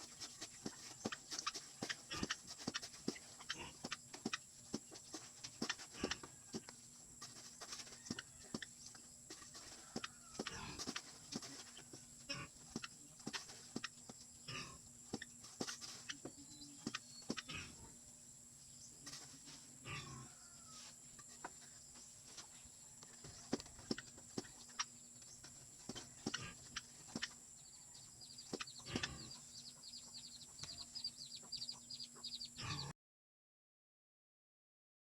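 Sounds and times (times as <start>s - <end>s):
high chirping: 28.2s - 32.9s.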